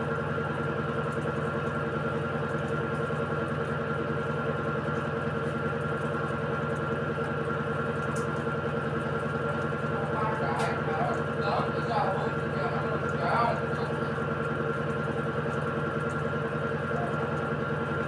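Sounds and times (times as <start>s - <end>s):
washing machine spin hum: 0.0s - 18.0s.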